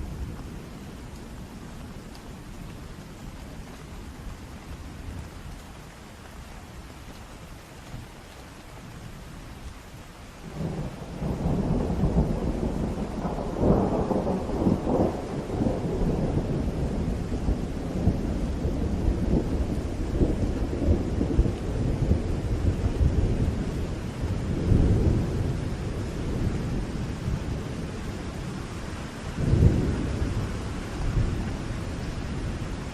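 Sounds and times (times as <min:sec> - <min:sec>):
steady rain: 0:00.0 - 0:32.9
rolling thunder: 0:10.4 - 0:32.9.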